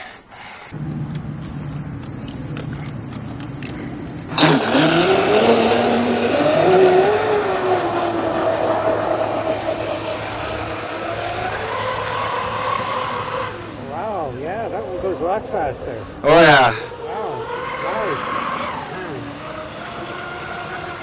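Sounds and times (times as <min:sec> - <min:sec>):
water spray hissing: 0:00.7 - 0:16.2
rc boat motor whining: 0:00.7 - 0:21.0
motor clicks: 0:00.8 - 0:13.8
electric motor humming: 0:00.8 - 0:21.0.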